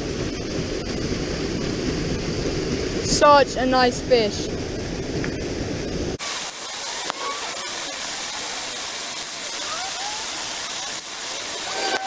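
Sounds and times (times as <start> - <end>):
wind buffeting microphone: 0.0 - 6.2
rushing creek: 6.2 - 12.0.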